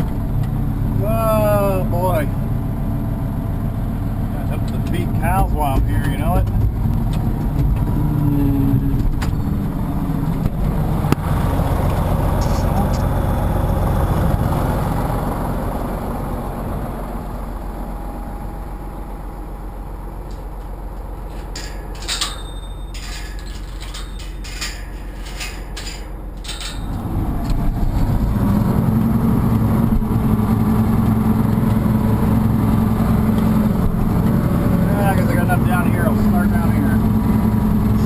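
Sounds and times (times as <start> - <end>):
tractor engine running: 0.0 - 38.0
sharp clicks and rattles: 4.4 - 8.0, 10.3 - 14.0, 20.3 - 28.2.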